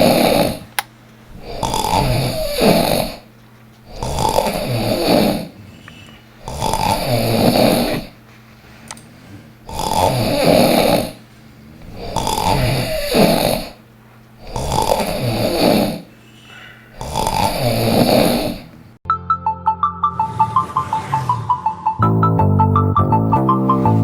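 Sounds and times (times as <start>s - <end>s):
person snoring loudly: 0.0s - 0.7s, 1.4s - 3.3s, 3.9s - 8.2s, 9.2s - 13.8s, 14.4s - 16.1s, 16.9s - 18.8s
bright bouncy music: 19.1s - 24.0s.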